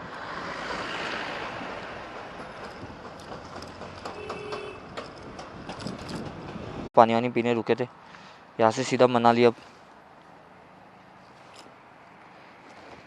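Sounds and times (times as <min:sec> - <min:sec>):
vehicle passing road noise: 0:00.0 - 0:06.9, 0:09.5 - 0:13.0.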